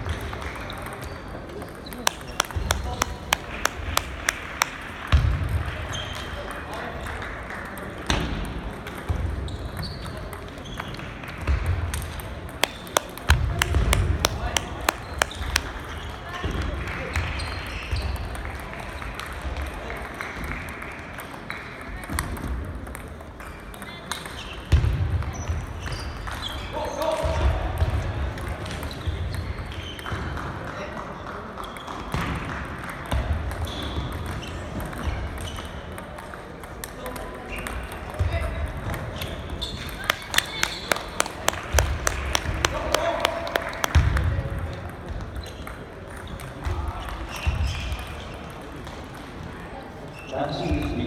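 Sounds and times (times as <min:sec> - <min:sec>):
table tennis balls clicking: 0:02.0 - 0:04.9, 0:12.6 - 0:15.8, 0:39.9 - 0:44.1.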